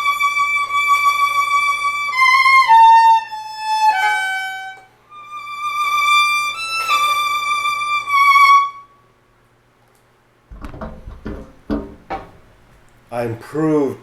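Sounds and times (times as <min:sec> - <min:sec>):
violin bowed notes with vibrato: 0:00.0 - 0:08.9
knocks and handling sounds: 0:10.5 - 0:13.1.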